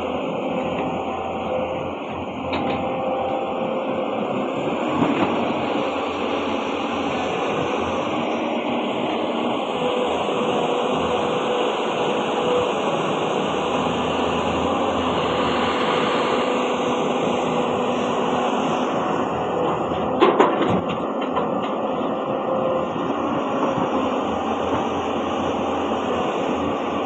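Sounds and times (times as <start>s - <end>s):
heavy diesel machinery running: 0.0s - 27.0s
sharp clanks and knocks: 20.0s - 21.8s.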